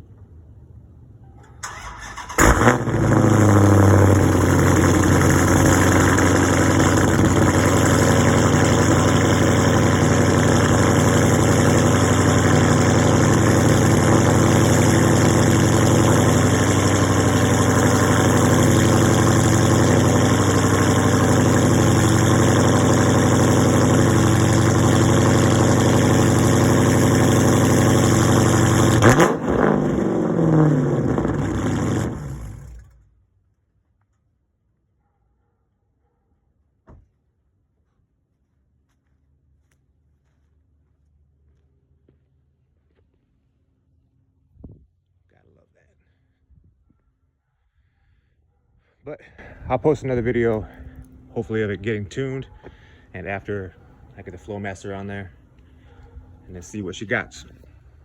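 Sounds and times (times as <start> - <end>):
car engine starting and idling: 0.0 - 33.2, 49.4 - 58.0.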